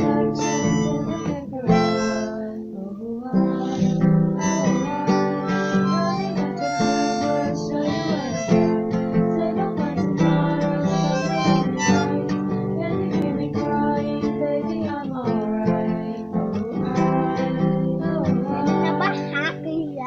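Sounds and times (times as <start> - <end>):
harmonica playing: 0.0 - 2.4, 3.6 - 9.2, 10.6 - 12.3
acoustic guitar strummed: 0.0 - 20.0.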